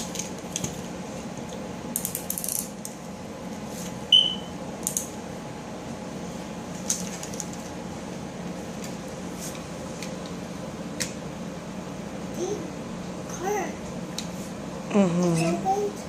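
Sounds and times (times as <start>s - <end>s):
steady low hum: 0.0s - 16.0s
plastic toys clicking and rattling: 2.0s - 2.7s.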